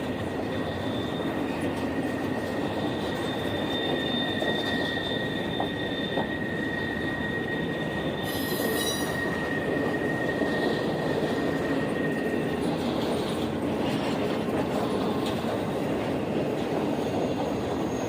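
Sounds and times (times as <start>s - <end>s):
train wheels rumbling: 0.0s - 18.0s
high steel wheel squeal: 0.1s - 13.4s, 17.0s - 18.0s.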